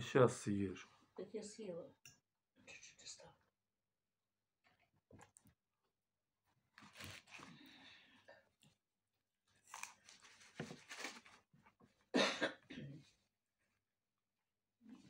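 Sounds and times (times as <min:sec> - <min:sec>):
man chewing food: 0:09.5 - 0:10.6.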